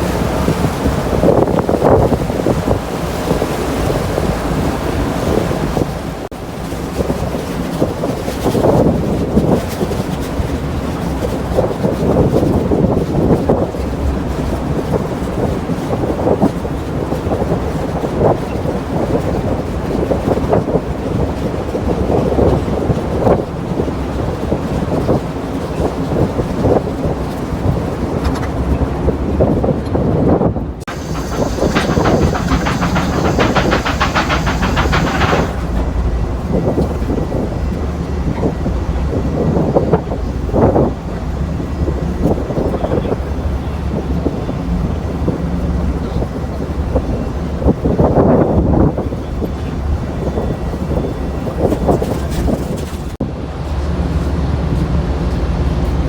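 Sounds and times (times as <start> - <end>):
wind buffeting microphone: 0.0 - 53.2
low engine drone: 30.9 - 39.3.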